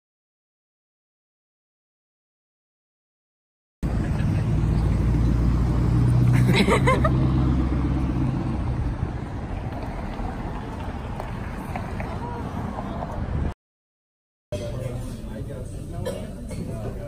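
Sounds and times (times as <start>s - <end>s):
vehicle engine driving past: 3.8s - 13.2s.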